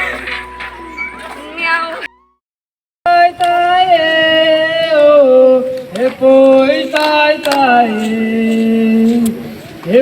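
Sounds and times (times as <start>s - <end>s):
person singing slow melody: 3.1s - 9.5s.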